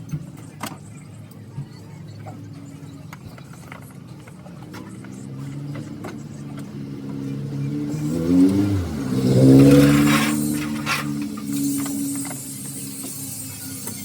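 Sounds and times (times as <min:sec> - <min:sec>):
vehicle engine revving: 0:02.2 - 0:14.0.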